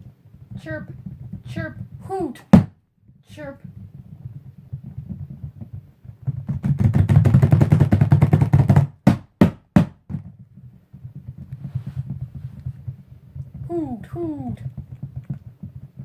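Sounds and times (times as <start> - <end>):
person making mouth rattling rumble: 13.5 - 15.6.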